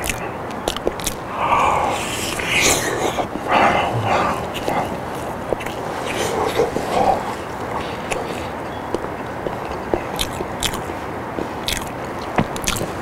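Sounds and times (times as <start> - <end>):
wet mouth clicks and smacks: 0.0 - 3.5, 4.3 - 10.9, 11.6 - 13.0
chewing and biting: 0.0 - 13.0
steady hiss: 1.2 - 9.7.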